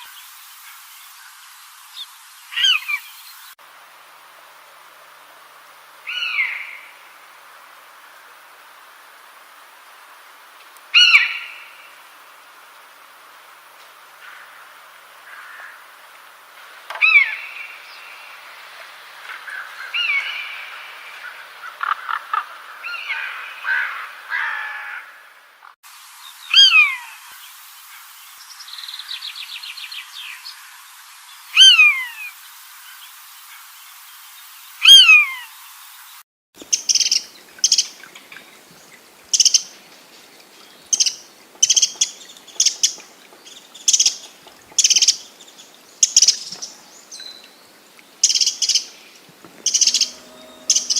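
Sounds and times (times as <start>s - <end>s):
light hiss: 0.0s - 19.4s, 25.9s - 50.9s
birds chirping and calling: 49.5s - 50.9s
bird rapid trill: 49.6s - 50.9s.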